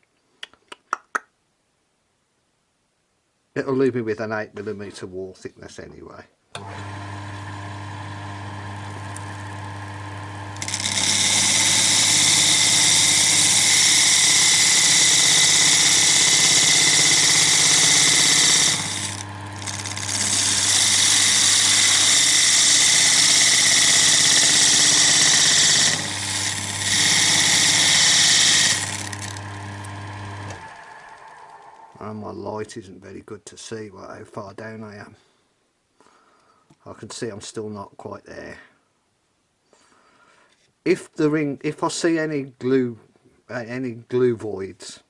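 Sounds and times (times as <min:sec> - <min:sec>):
wood lathe motor humming: 0:06.6 - 0:32.1
chisel scraping spinning wood: 0:06.6 - 0:32.2.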